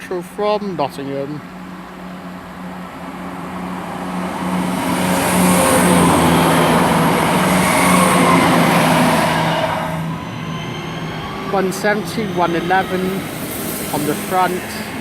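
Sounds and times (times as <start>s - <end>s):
diesel train engines: 0.0s - 15.0s
train wheels on rails: 3.2s - 15.0s.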